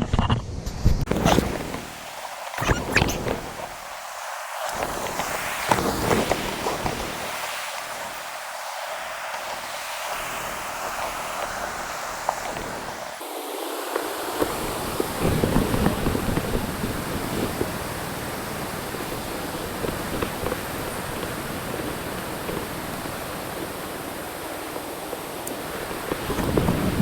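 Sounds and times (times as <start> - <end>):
wind rumble on microphone: 0.0 - 4.0, 4.6 - 13.2, 14.0 - 27.0
water rushing: 1.1 - 17.2.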